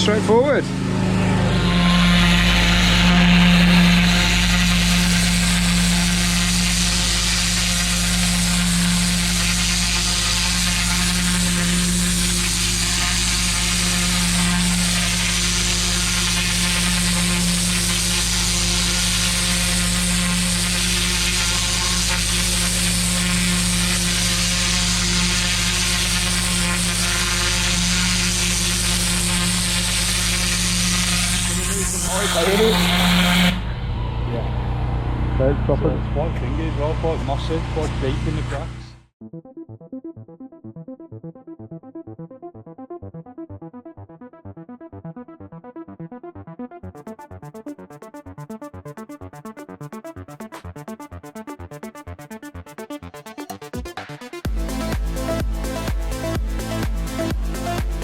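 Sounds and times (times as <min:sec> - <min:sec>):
pressure washer engine hum: 0:00.0 - 0:39.0, 0:54.5 - 0:58.0
high-pressure water jet hissing: 0:01.4 - 0:33.6.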